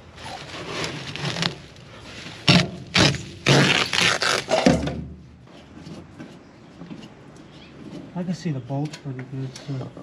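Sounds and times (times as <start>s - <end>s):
objects clattering and scraping: 0.1s - 3.6s, 4.3s - 8.2s.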